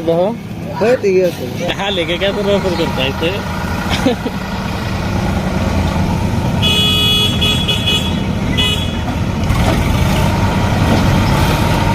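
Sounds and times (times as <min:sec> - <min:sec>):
heavy vehicle engine running: 0:00.0 - 0:11.9
vehicle horn blasts: 0:06.6 - 0:09.1.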